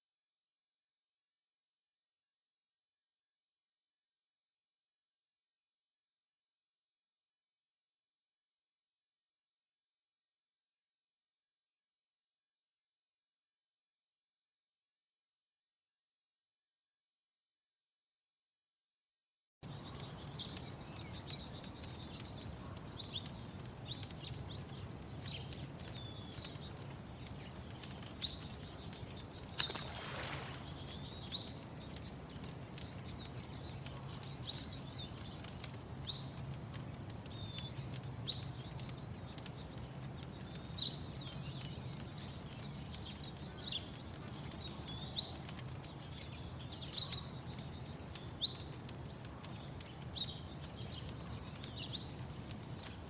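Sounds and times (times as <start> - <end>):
small birds chirping: 19.6 - 53.0
wood fire crackling: 19.6 - 53.0.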